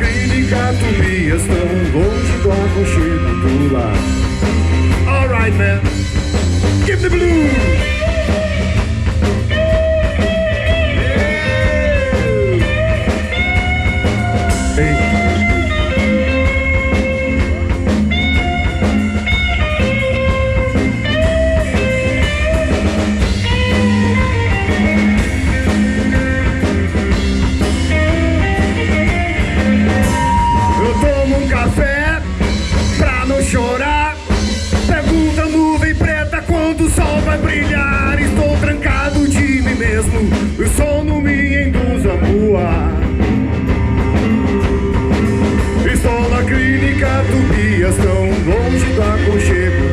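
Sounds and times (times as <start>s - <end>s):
bass guitar: 0.0s - 49.9s
drums: 0.0s - 49.9s
lead electric guitar with pitch bends: 0.0s - 49.9s.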